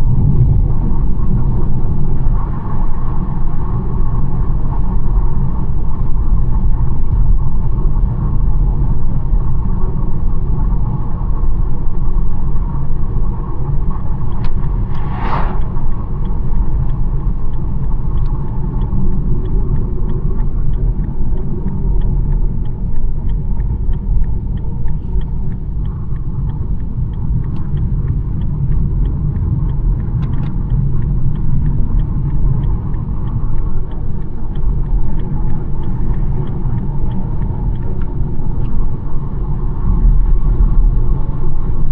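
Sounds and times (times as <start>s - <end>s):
car road and engine rumble: 0.0s - 41.9s
faint regular ticking: 12.0s - 41.8s
brief rush of noise: 14.4s - 16.5s.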